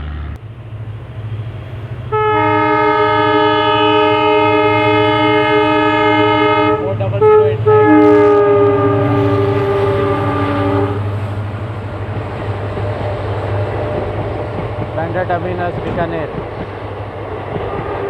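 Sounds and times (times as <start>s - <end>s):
low engine hum: 0.0s - 2.3s
train rumbling: 0.0s - 18.0s
locomotive horn blasts: 2.1s - 11.2s.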